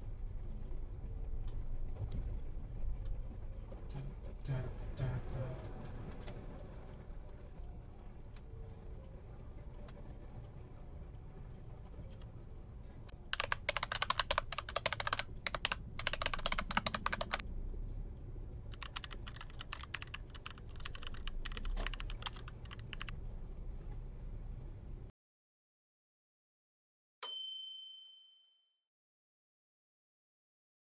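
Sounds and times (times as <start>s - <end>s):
rapid dense clicking: 13.4s - 17.4s, 18.8s - 23.1s.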